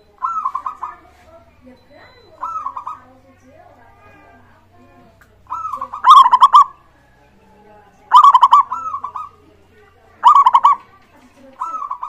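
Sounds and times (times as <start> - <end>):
dove cooing: 0.0 - 1.4, 2.2 - 4.4, 5.4 - 7.5, 8.1 - 12.0.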